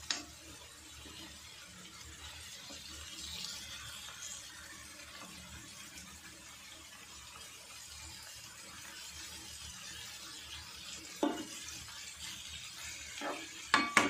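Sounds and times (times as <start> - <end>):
food sizzling in frying pan: 0.0 - 14.0
metal spatula scraping: 13.2 - 14.0.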